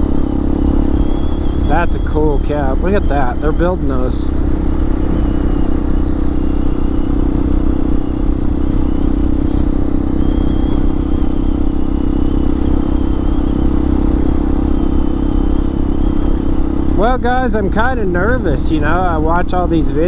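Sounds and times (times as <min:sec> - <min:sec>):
motorcycle engine while riding: 0:00.0 - 0:20.0.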